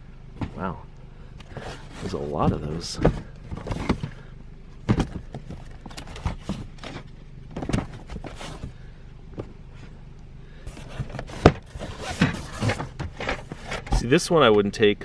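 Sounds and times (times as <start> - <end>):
steady low hum: 0.0 - 15.0
books and boxes knocking: 0.3 - 0.8, 1.5 - 4.2, 4.8 - 8.7, 10.8 - 14.1.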